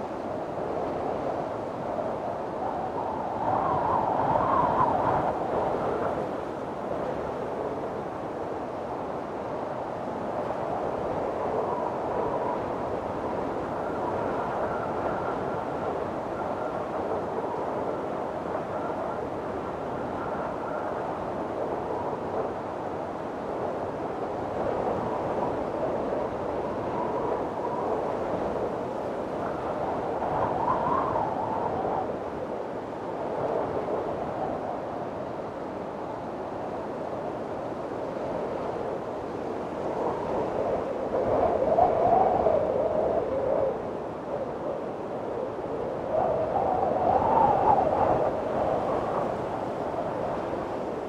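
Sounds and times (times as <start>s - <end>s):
wind blowing hard: 0.0s - 51.0s
faint wavering howl: 10.2s - 37.3s, 38.1s - 51.0s
high wind whistle: 39.1s - 51.0s.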